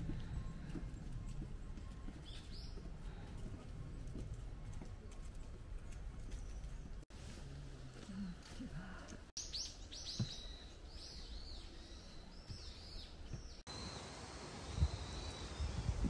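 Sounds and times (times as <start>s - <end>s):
birds chirping: 9.4s - 16.0s.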